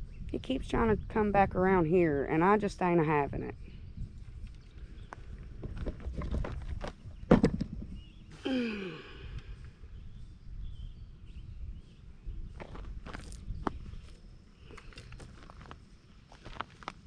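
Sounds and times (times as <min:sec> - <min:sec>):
person sighing: 0:08.3 - 0:09.6.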